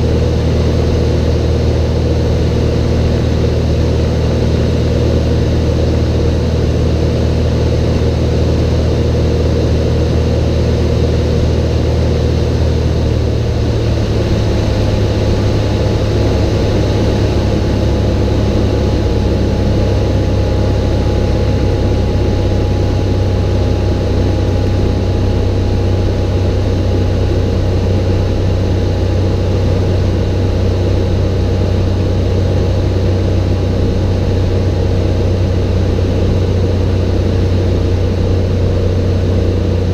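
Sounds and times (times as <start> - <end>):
propeller plane engine running: 0.0 - 39.9.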